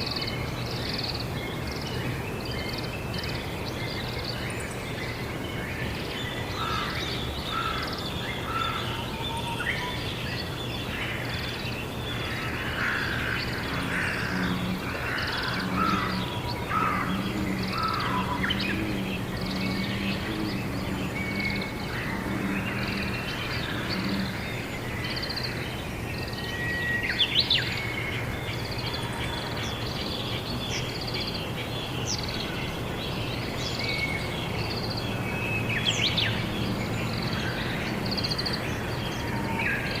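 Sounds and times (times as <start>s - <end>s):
small birds chirping: 0.0s - 40.0s
crows cawing: 6.6s - 9.0s, 12.2s - 24.6s
low background hum: 11.2s - 26.0s.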